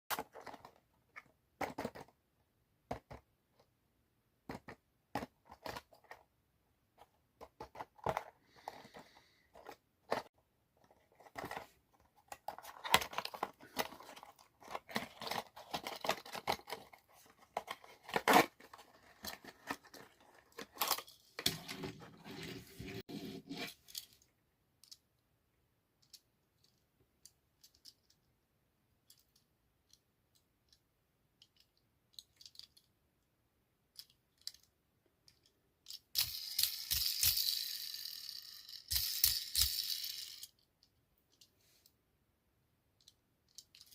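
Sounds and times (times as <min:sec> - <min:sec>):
packaging clicks and knocks: 0:00.1 - 0:02.1, 0:07.4 - 0:21.5.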